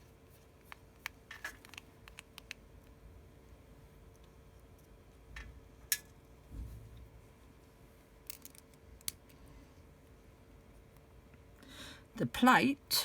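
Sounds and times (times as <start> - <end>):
faint steady hum: 0.0 - 13.0
soft low thud: 6.5 - 7.2.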